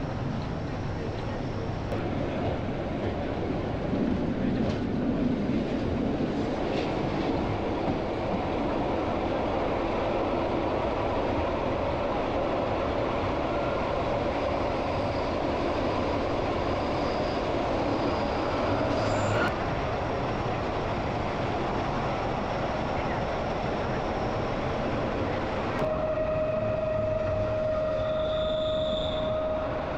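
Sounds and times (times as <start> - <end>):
train wheels on rails: 0.0 - 29.9
faint high whine: 25.8 - 29.9.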